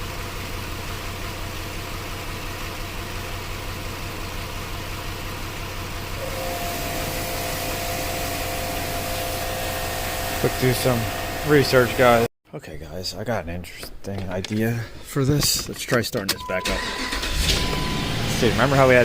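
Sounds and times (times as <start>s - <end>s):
car engine idling rough: 0.0s - 12.3s, 16.9s - 19.0s
steady whine with rushing hiss: 6.2s - 12.3s.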